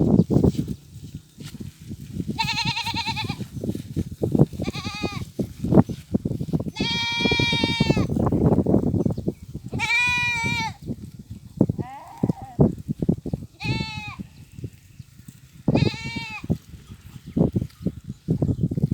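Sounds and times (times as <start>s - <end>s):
goats bleating: 2.4s - 3.4s, 4.6s - 5.3s, 6.7s - 8.1s, 9.7s - 10.8s, 11.8s - 12.7s, 13.6s - 14.3s, 15.7s - 16.6s.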